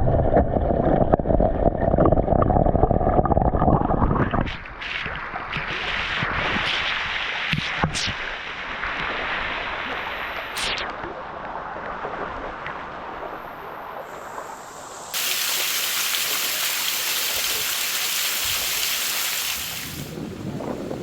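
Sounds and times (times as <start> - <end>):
waterfall rushing: 14.2 - 20.2.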